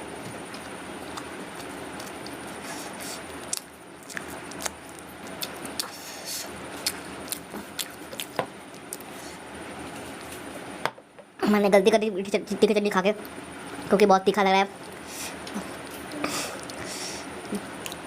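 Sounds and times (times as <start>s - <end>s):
steady background noise: 0.0s - 18.0s
chewing mouth clicks and smacks: 3.5s - 6.0s.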